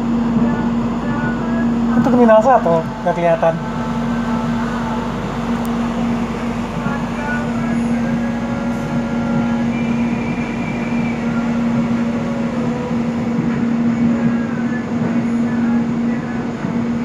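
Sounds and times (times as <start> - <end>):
electric train rumbling: 0.0 - 17.0
low hum: 0.0 - 17.0.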